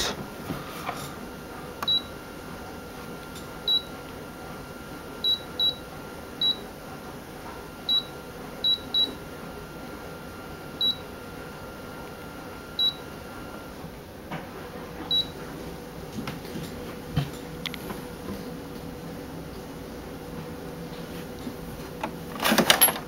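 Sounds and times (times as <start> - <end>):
faint machine hum: 0.0 - 23.0
photocopier keypad beeps: 1.8 - 2.2, 3.4 - 4.0, 5.2 - 6.7, 7.8 - 9.2, 10.7 - 11.2, 12.7 - 13.1, 15.1 - 15.4.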